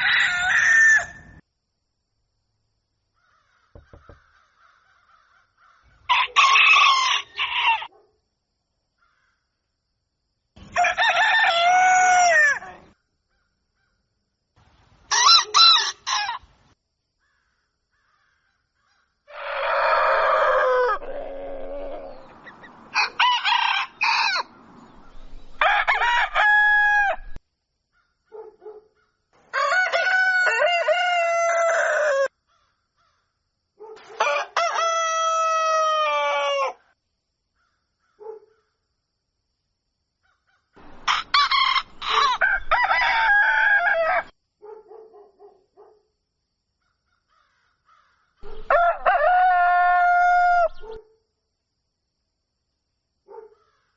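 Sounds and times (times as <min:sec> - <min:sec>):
roosters crowing: 0:00.0 - 0:01.4, 0:03.3 - 0:07.9, 0:10.6 - 0:13.0, 0:15.1 - 0:16.5, 0:19.3 - 0:27.4, 0:29.4 - 0:32.3, 0:34.0 - 0:36.8, 0:40.8 - 0:44.3, 0:48.4 - 0:51.0
chicken clucks: 0:20.6 - 0:22.9.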